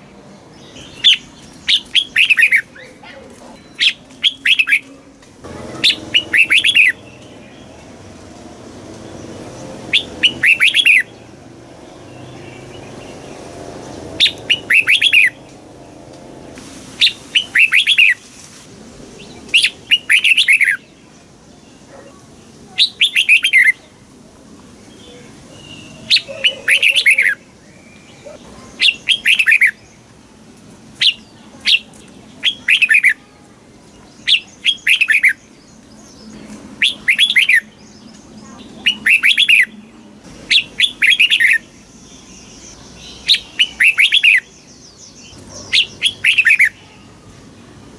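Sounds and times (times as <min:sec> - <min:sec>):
bird singing whistled notes: 0:00.7 - 0:02.9, 0:03.6 - 0:04.9, 0:05.8 - 0:07.7, 0:09.9 - 0:11.2, 0:14.2 - 0:15.4, 0:17.0 - 0:18.2, 0:19.5 - 0:20.8, 0:22.8 - 0:23.8, 0:34.1 - 0:39.8, 0:40.5 - 0:46.8.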